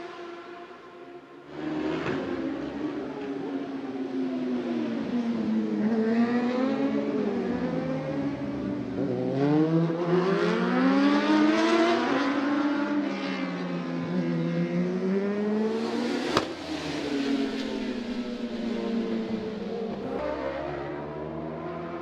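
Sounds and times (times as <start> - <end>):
racing motorcycle engines revving: 4.6 - 22.0.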